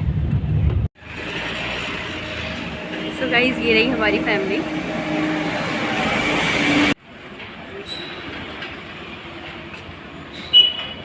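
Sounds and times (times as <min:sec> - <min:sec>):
loud vehicle noise: 0:00.0 - 0:11.0.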